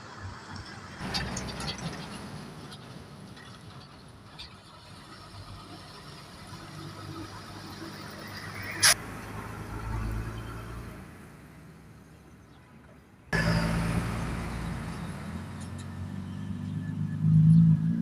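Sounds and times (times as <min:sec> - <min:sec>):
truck engine passing: 0:00.9 - 0:03.9, 0:13.3 - 0:18.0.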